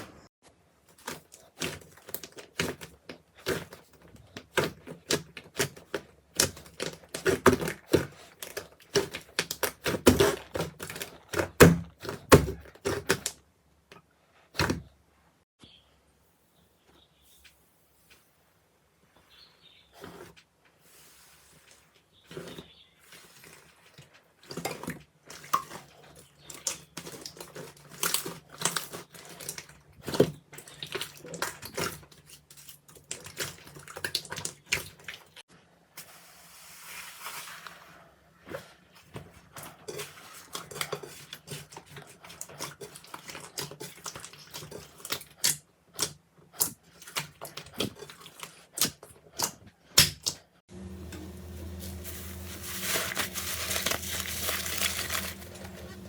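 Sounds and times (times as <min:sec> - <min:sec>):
slime squelching: 0:38.4 - 0:56.0.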